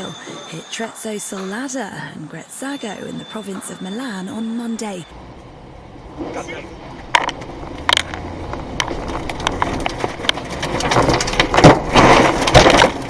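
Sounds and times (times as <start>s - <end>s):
tornado wind rushing: 5.1s - 13.0s
debris knocking and clattering: 8.8s - 13.0s.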